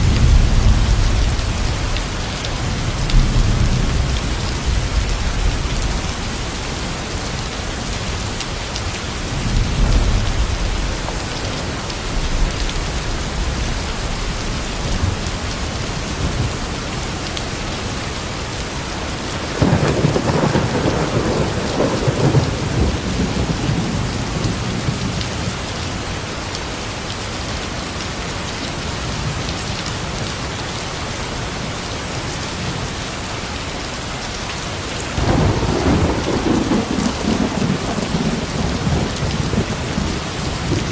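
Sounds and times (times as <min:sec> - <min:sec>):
thunder rumbling: 0:00.0 - 0:07.0, 0:19.4 - 0:25.5, 0:35.2 - 0:40.9
heavy rain: 0:00.0 - 0:40.9.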